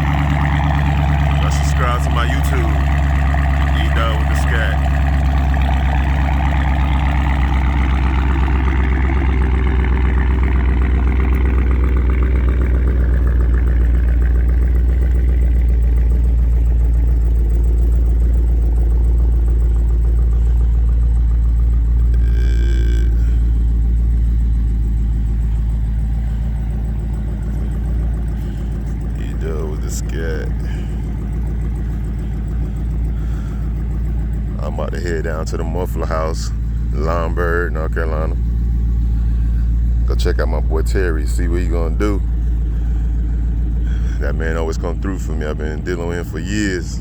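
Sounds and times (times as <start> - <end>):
car engine idling: 0.0 - 47.0.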